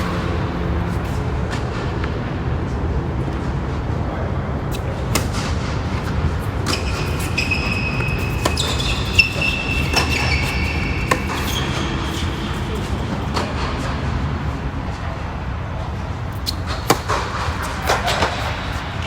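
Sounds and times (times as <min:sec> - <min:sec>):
tennis balls struck by racquets: 0:04.7 - 0:14.3, 0:16.3 - 0:19.0.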